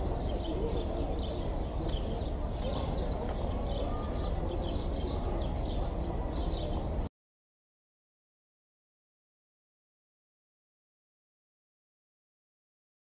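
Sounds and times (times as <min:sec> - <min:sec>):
small birds chirping: 0:00.0 - 0:07.1.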